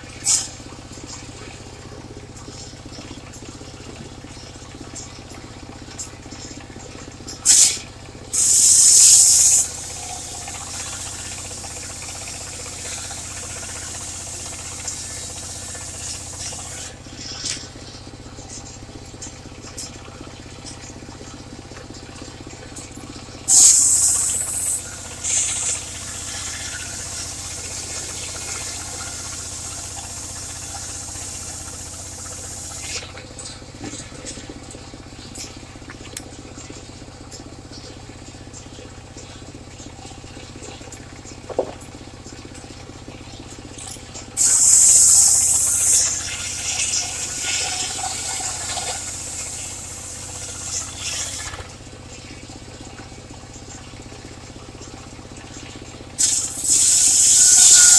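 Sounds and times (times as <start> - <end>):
sawmill engine running: 0.0 - 57.9
high hissing bursts: 8.4 - 9.8, 23.5 - 25.8, 44.4 - 46.2, 56.2 - 57.9.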